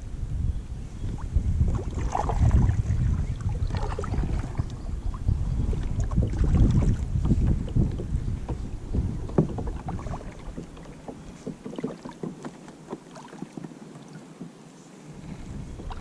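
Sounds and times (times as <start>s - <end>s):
wind buffeting microphone: 0.0s - 12.4s, 15.1s - 16.0s
water splashing: 1.1s - 14.5s
knocks on kayak hull: 6.1s - 13.7s.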